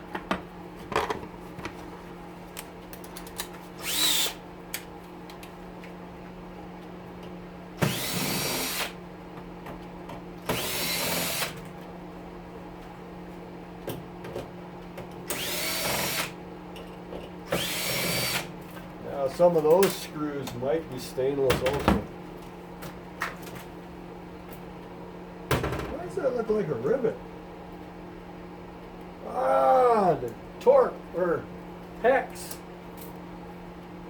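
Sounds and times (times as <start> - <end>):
steady low hum: 0.0 - 34.0
power drill backing out screws: 7.8 - 8.9.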